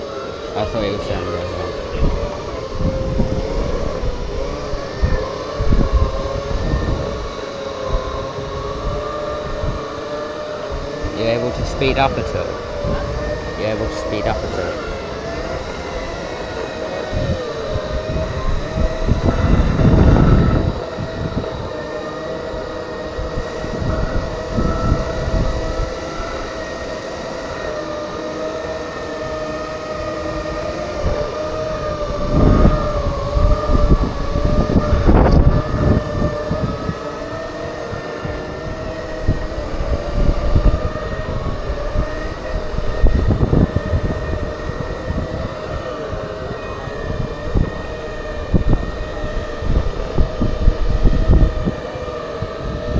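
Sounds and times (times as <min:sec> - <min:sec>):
electric drive whining: 0:00.0 - 0:52.9
wind noise on microphone: 0:00.0 - 0:52.9.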